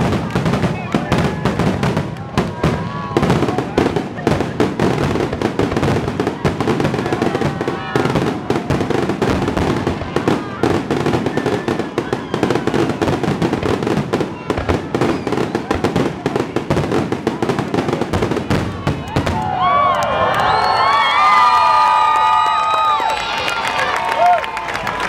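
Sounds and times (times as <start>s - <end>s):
fireworks bangs and crackles: 0.0s - 19.8s.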